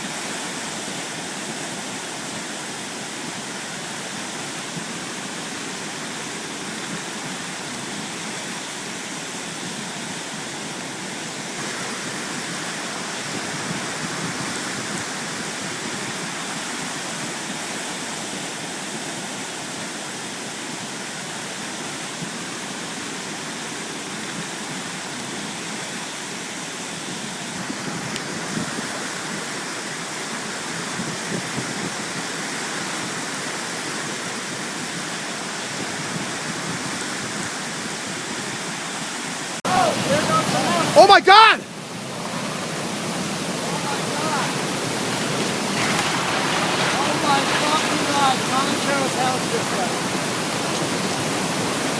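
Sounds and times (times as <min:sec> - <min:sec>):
floodwater rushing in a brook: 0:00.0 - 0:51.9.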